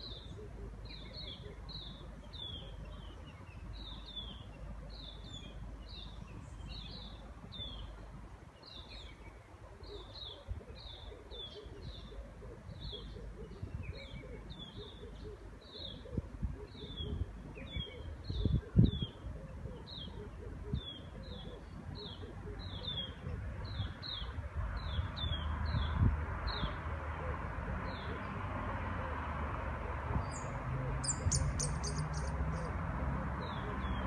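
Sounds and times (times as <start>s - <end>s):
bird chirping: 30.3s - 32.7s.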